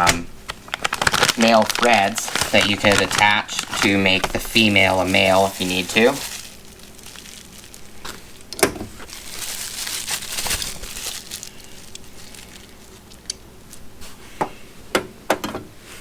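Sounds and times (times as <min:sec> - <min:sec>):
plastic bags crinkling: 0:00.0 - 0:13.8.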